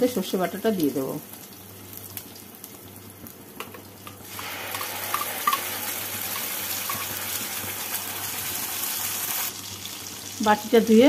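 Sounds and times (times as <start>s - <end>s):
paste sizzling in hot oil: 4.2s - 10.9s.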